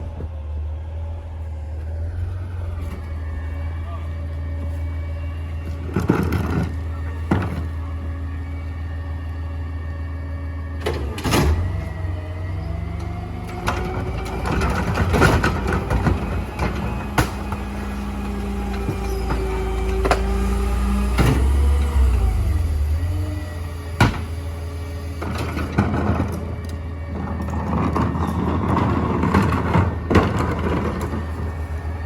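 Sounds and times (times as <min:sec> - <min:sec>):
hydraulic whine: 0:00.0 - 0:32.0
truck engine drone: 0:00.0 - 0:32.0.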